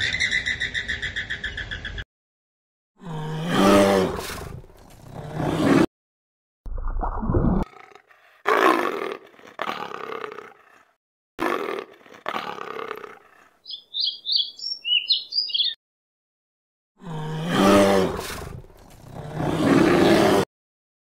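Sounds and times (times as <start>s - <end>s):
bear roaring: 3.0s - 5.9s, 7.6s - 13.6s, 17.0s - 20.5s
leopard roaring: 3.0s - 5.9s, 7.6s - 13.6s, 17.0s - 20.4s
hummingbird chirps: 13.6s - 15.8s.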